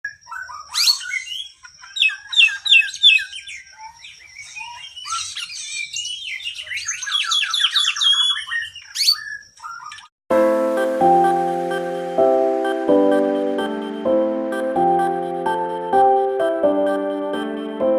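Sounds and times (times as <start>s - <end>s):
bird singing whistles and chirps: 0.1s - 10.1s
music: 10.3s - 17.9s.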